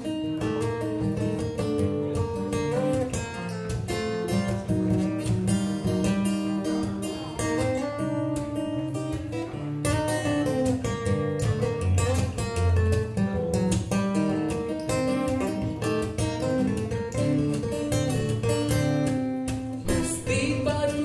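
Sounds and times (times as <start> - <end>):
picked guitar melody: 0.0 - 21.0
strummed acoustic guitar chords: 0.0 - 21.0.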